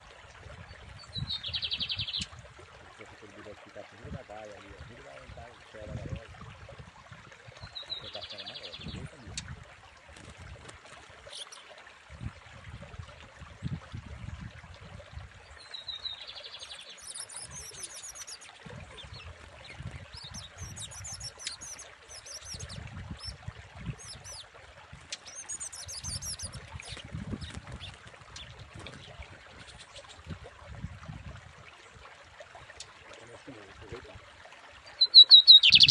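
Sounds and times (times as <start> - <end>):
bird twittering: 15.6 - 23.4, 24.0 - 24.4, 25.1 - 28.5, 34.9 - 35.9.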